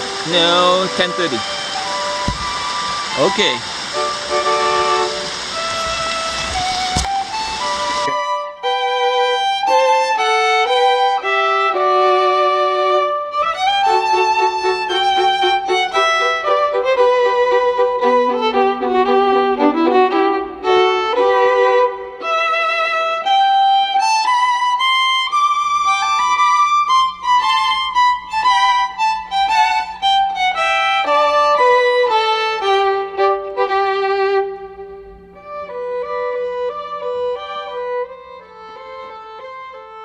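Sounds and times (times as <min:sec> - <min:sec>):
solo violin melody: 0:00.0 - 0:40.0.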